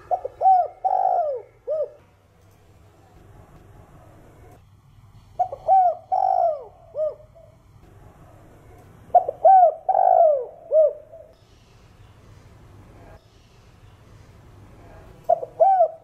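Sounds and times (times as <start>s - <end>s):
dove cooing: 0.0s - 2.1s, 5.4s - 7.6s, 9.1s - 11.4s, 15.3s - 16.0s.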